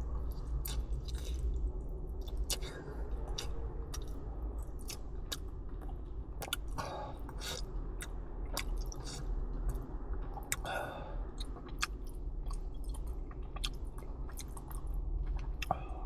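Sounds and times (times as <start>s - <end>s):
steady low hum: 0.0s - 16.0s
person chewing food: 0.3s - 16.0s
wet mouth clicks: 0.7s - 1.5s, 2.2s - 4.2s, 6.4s - 9.3s, 11.4s - 14.8s.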